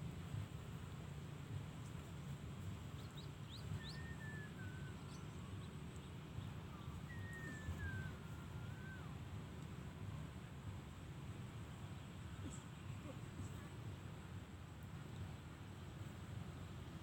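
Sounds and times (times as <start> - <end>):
bird chirping and whistling: 3.5 - 5.6, 6.8 - 9.0.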